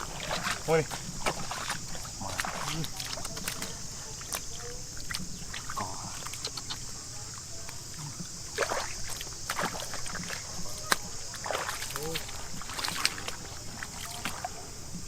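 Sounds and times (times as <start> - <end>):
shallow water sloshing: 0.0 - 15.0.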